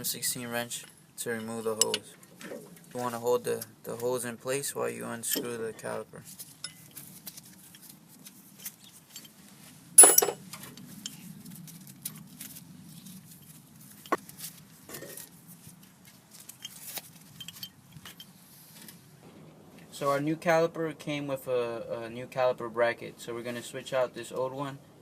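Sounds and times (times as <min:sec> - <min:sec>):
metal tools clinking: 0:01.2 - 0:02.2, 0:05.2 - 0:05.6, 0:06.4 - 0:07.9, 0:08.5 - 0:09.4, 0:10.0 - 0:11.3, 0:16.3 - 0:18.4
loud ringing metallic clink: 0:10.0 - 0:10.4.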